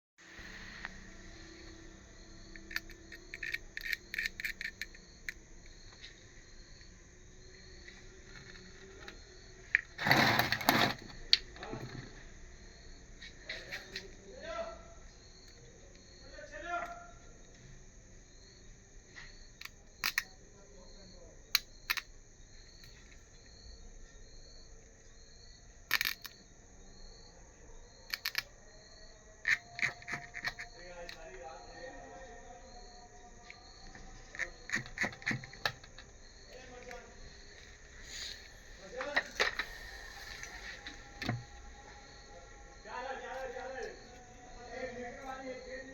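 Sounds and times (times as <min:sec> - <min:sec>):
steady hiss: 0:00.2 - 0:02.1, 0:37.8 - 0:41.3
insects chirping: 0:00.2 - 0:45.9.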